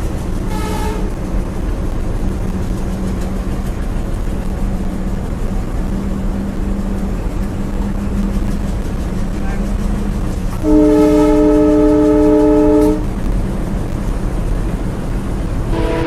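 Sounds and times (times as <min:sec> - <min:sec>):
train rumbling: 0:00.0 - 0:16.0
train horn blast: 0:00.5 - 0:01.2, 0:10.6 - 0:13.2, 0:15.6 - 0:16.0.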